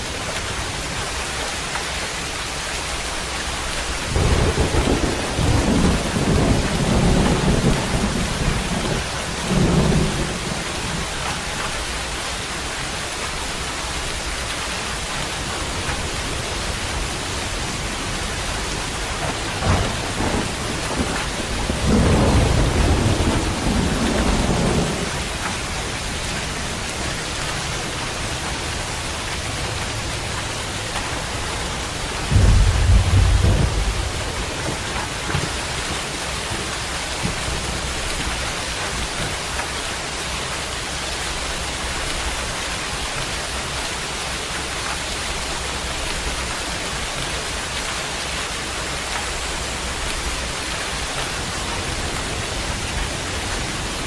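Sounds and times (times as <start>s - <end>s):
steady rain: 0.0s - 54.0s
thunder rumbling: 3.9s - 12.2s, 15.4s - 39.5s.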